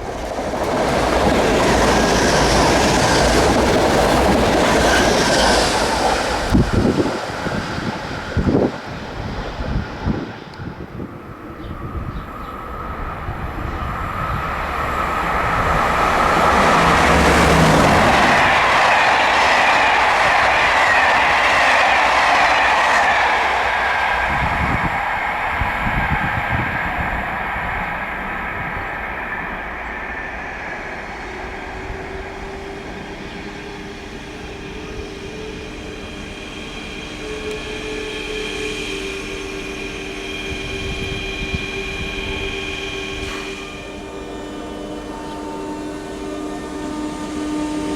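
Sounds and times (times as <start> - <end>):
train rolling past: 0.0 - 47.9
steady whining tones: 1.6 - 47.9.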